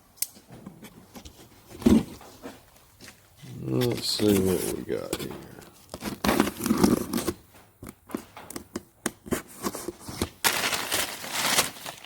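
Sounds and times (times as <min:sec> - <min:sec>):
packing wrap crinkling: 0:10.0 - 0:12.0.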